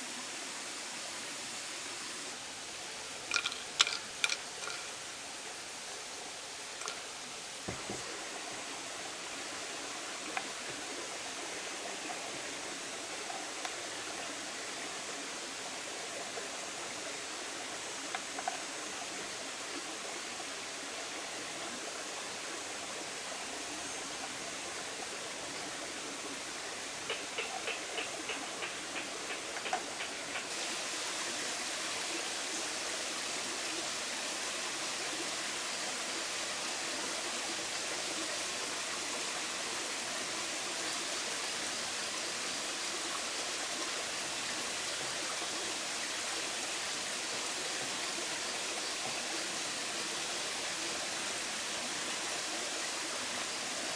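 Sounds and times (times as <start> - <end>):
potatoes sizzling in hot oil: 3.1 - 8.2, 30.5 - 45.0.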